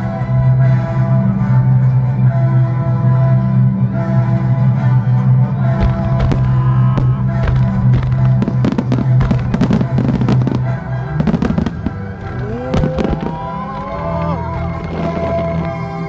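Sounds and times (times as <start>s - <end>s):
loud music: 0.0s - 16.0s
steady low drone: 0.0s - 16.0s
fireworks cracking and banging: 5.8s - 16.0s.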